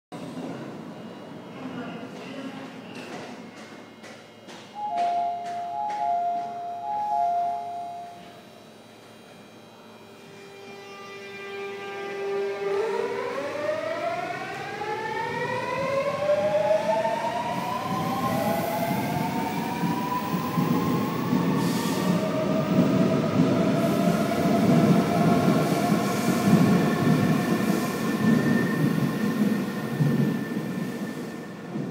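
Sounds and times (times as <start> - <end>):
two-note chime: 4.8 - 8.4.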